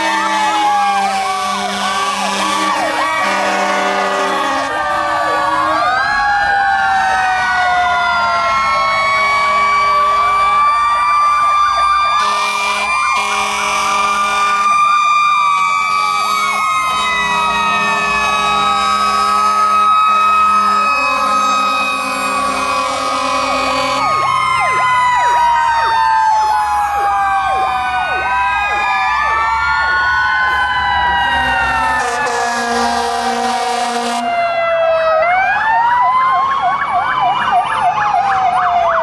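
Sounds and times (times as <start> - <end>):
air horn blasts: 0.0 - 4.8, 12.2 - 14.8, 15.9 - 24.2, 31.3 - 34.4
fire truck sirens: 0.0 - 39.0.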